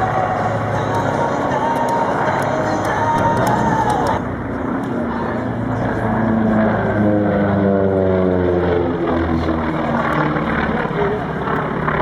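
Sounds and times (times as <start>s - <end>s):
propeller airplane flying past: 0.0s - 12.0s.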